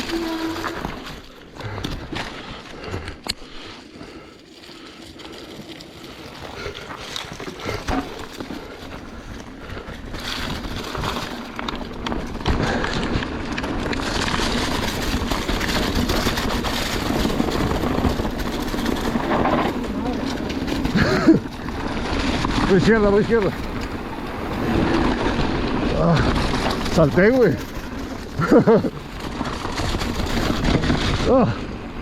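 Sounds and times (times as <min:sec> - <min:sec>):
bike rattling and knocking: 0:00.0 - 0:32.0
bike tyres running over ground: 0:00.0 - 0:32.0.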